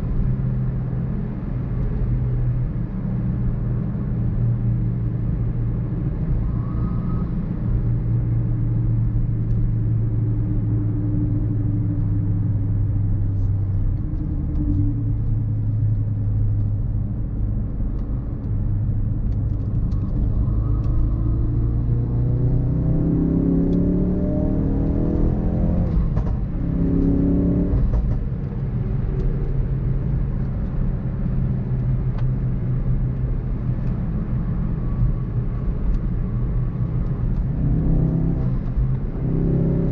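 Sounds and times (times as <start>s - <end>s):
road noise: 0.0s - 39.9s
car engine revving: 19.4s - 29.8s.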